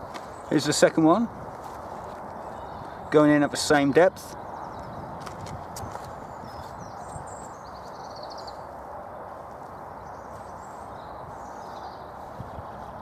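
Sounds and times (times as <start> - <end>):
hands scuffing soil: 0.0 - 0.8, 1.5 - 2.5, 8.6 - 13.0
small birds chirping: 0.0 - 13.0
bird trill: 6.2 - 8.6.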